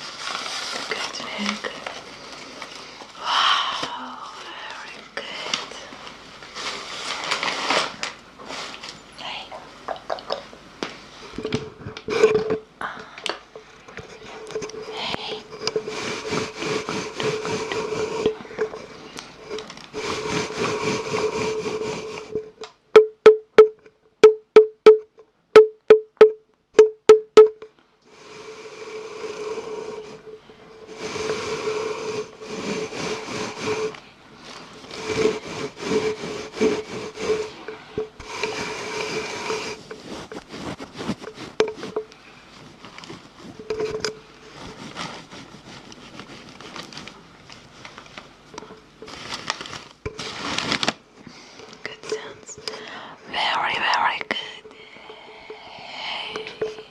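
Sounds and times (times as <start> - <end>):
rasping noise: 34.8 - 42.0.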